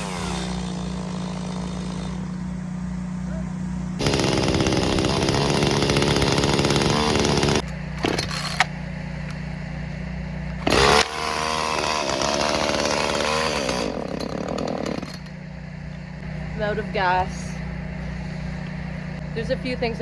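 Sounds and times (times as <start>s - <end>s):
chainsaw running: 0.0s - 8.7s, 10.5s - 15.4s.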